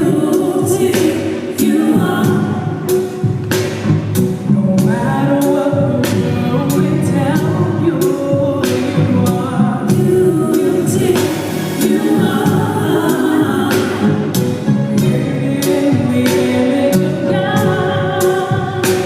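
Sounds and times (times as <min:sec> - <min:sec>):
choir singing: 0:00.0 - 0:03.3, 0:08.6 - 0:19.0.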